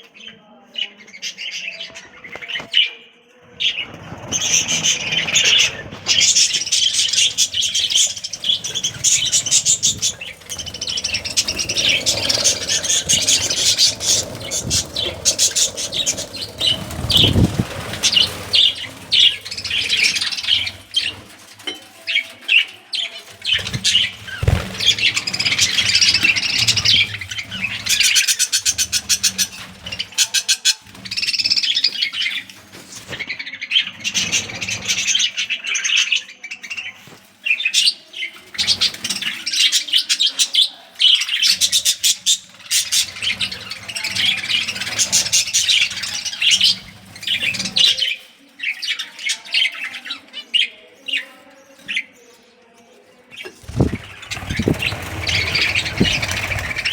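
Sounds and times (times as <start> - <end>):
wings flapping: 3.5 - 22.4, 23.2 - 33.3, 41.3 - 48.2, 53.5 - 56.9
budgerigars chattering and chirping: 3.6 - 21.3, 22.1 - 52.1, 53.3 - 56.9
low bumps: 5.3 - 21.0, 23.8 - 28.2, 53.6 - 56.9.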